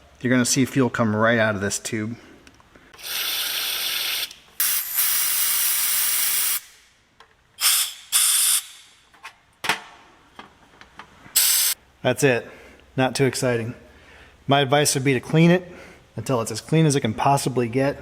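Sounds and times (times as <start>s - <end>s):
pressurised spray hissing: 3.1s - 6.6s, 11.4s - 11.8s.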